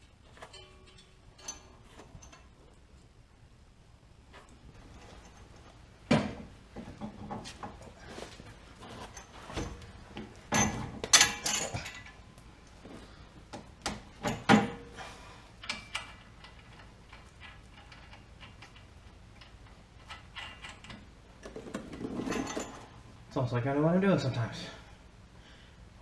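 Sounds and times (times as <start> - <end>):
metal parts clinking and knocking: 0.0 - 2.5, 8.9 - 12.2, 15.6 - 22.9.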